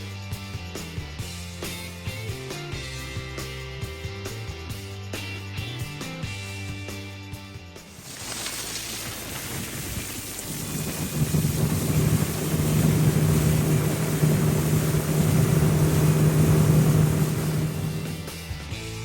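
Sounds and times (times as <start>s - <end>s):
rushing water: 7.9s - 18.3s
wind noise: 7.9s - 18.3s
watercraft engine hum: 7.9s - 18.6s.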